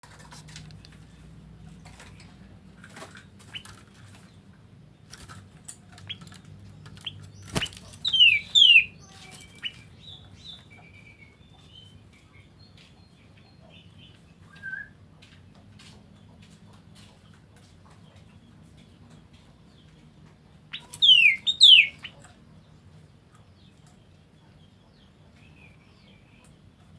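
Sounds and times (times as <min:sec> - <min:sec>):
bird chirps: 0:06.0 - 0:15.0, 0:20.7 - 0:22.3.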